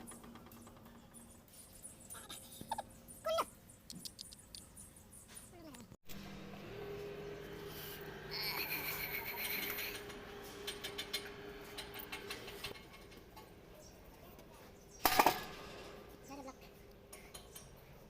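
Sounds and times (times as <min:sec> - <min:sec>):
loud metal clatter: 0:15.0 - 0:16.2
light metallic clicks and clinks: 0:16.8 - 0:18.0.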